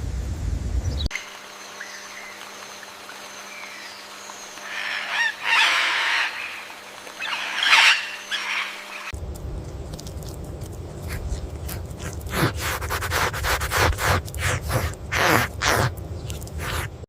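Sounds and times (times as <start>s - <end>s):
bird harsh calls: 1.7s - 9.2s.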